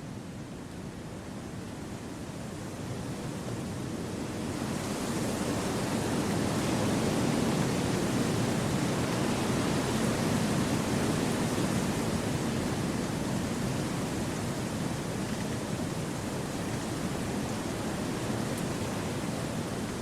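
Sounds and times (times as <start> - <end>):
wind through trees: 4.2 - 20.0.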